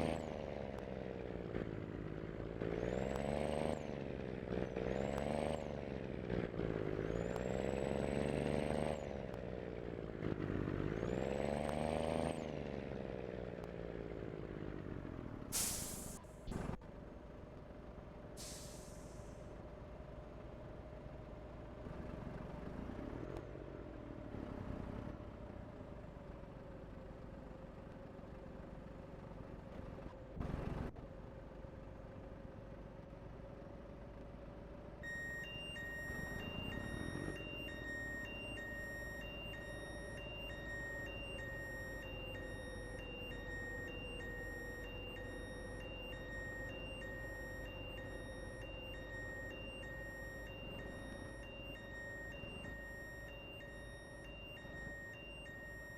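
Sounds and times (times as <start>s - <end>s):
vehicle engine droning: 0.0s - 55.9s
electronic warning beep: 35.0s - 55.9s.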